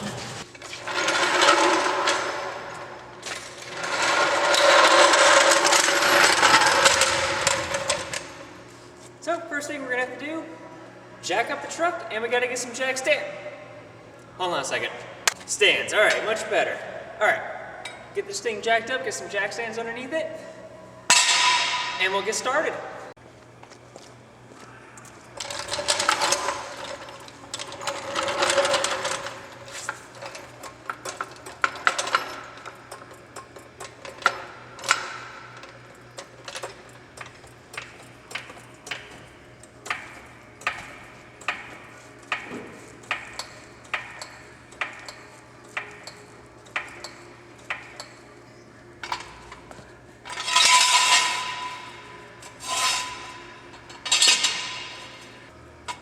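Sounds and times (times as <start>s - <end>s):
metal clanking and scraping: 0.0s - 8.5s, 21.1s - 22.4s, 25.4s - 48.2s, 49.0s - 56.0s.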